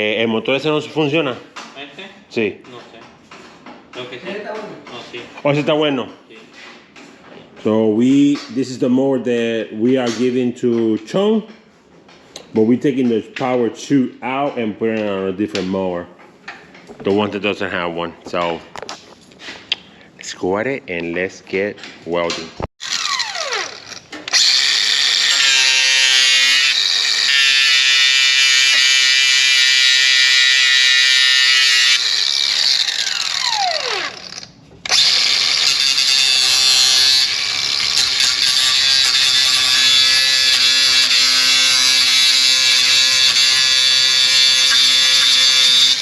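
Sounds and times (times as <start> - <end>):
angle grinder on metal: 22.8 - 46.0
grinder motor spinning down: 22.8 - 46.0.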